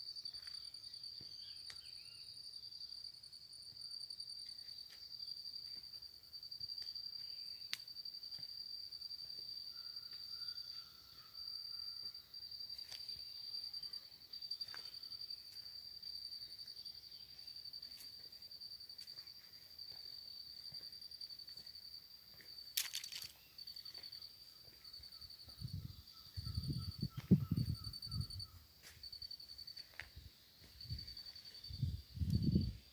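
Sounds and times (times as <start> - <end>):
insect trilling: 22.6 - 28.6.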